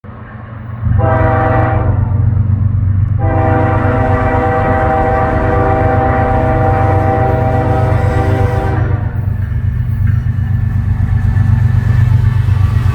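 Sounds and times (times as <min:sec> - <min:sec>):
train rumbling: 0:00.0 - 0:12.9
locomotive air horn blasts: 0:00.9 - 0:02.2, 0:03.2 - 0:09.4.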